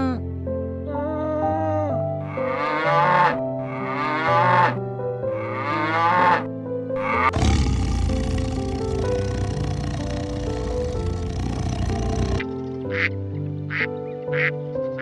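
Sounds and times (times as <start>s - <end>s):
background music: 0.0s - 15.0s
animal calling: 2.3s - 4.8s, 7.0s - 13.1s.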